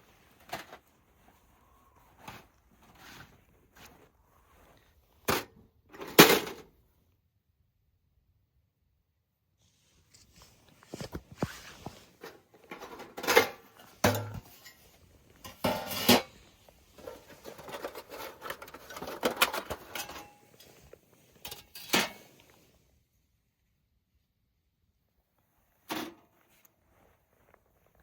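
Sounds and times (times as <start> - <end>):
metal stove parts clinking: 12.7 - 16.4, 17.0 - 20.8, 21.4 - 22.2.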